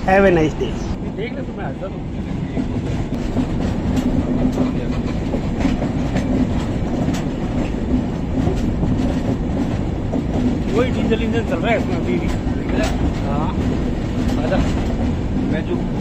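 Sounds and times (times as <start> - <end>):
train coaches rumbling: 0.0 - 16.0
wheels clicking over rail joints: 1.7 - 16.0.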